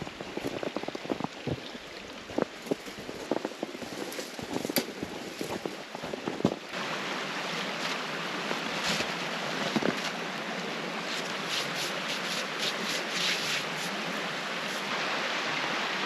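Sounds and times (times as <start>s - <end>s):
creek water rushing: 0.0s - 16.0s.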